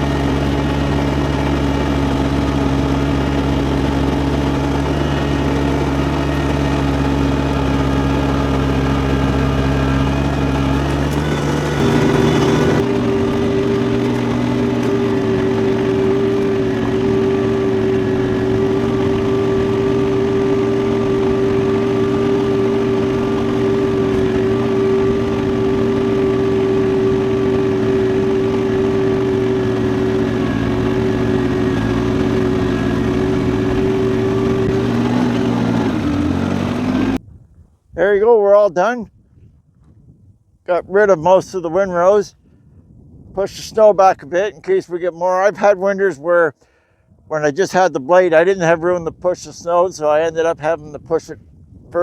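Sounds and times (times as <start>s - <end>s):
diesel tractor engine running: 0.0s - 37.2s.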